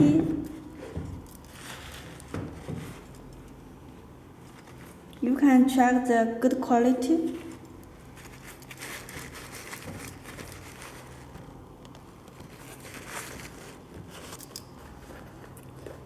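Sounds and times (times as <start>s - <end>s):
steady low hum: 0.0s - 16.0s
sneaker rustling and crinkling: 7.4s - 16.0s.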